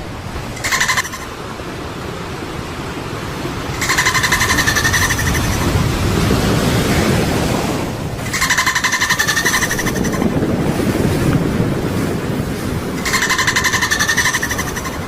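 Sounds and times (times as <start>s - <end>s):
steady low rumble: 0.0s - 15.0s
animal rattling trill call: 0.6s - 1.3s, 3.7s - 5.7s, 8.2s - 10.3s, 13.0s - 15.0s.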